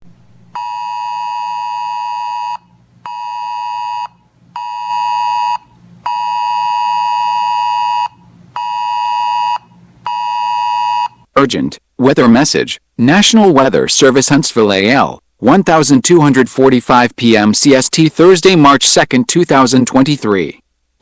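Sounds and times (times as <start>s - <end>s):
high electronic alarm beeps: 0.6s - 11.2s.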